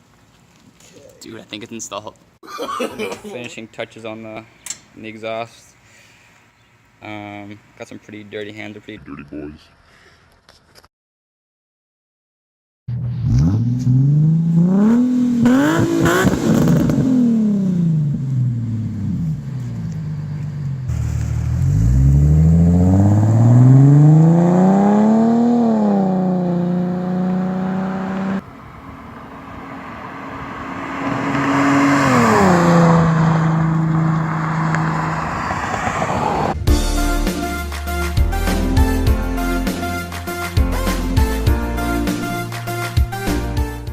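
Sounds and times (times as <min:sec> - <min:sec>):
car engine revving: 0:13.0 - 0:37.4
car engine idling: 0:18.0 - 0:23.2.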